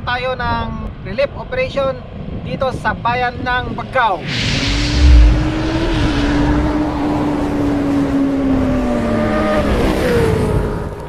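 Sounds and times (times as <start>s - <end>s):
low boom: 4.5s - 7.6s
higher engine note bending down: 4.8s - 7.9s.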